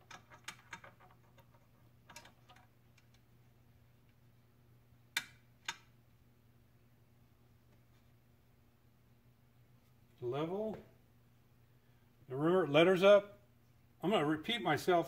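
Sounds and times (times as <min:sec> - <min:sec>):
small metal parts clicking: 0:00.0 - 0:03.2
faint low hum: 0:00.0 - 0:15.0.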